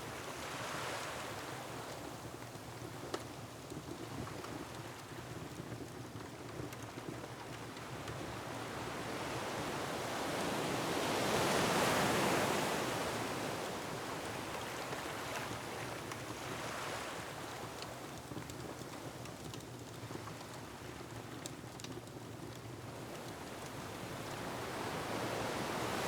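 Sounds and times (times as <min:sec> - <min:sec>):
wood fire crackles: 0:01.1 - 0:09.2, 0:13.7 - 0:25.8.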